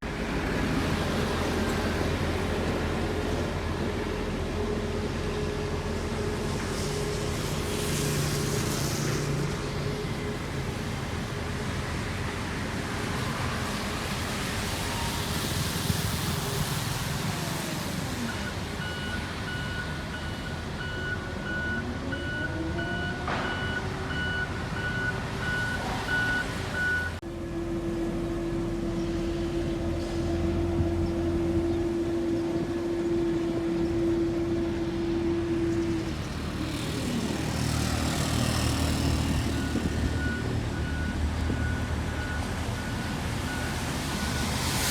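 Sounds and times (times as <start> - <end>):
heavy machinery engines humming: 0.0 - 44.9
reversing alarm beeping: 18.3 - 27.2.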